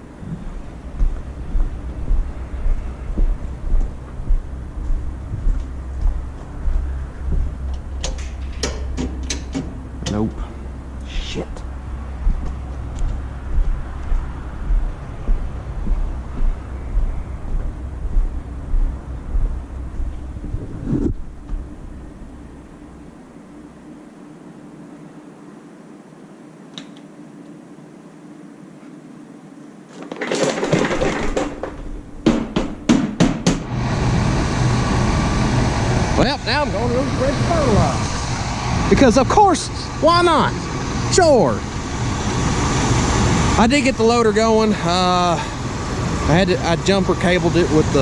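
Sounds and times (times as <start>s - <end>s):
vehicle engine rumbling: 0.0s - 23.8s, 33.6s - 48.0s
low buffeting: 0.0s - 25.4s, 33.6s - 48.0s
sharp knocks: 6.0s - 10.2s, 30.4s - 33.7s.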